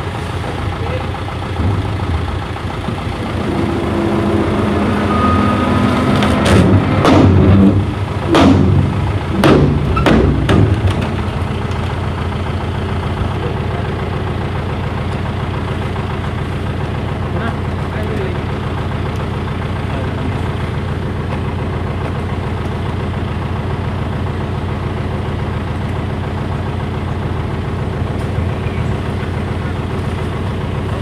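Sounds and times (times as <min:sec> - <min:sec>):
engine idling: 0:00.0 - 0:31.0
sharp thumps: 0:01.6 - 0:11.3.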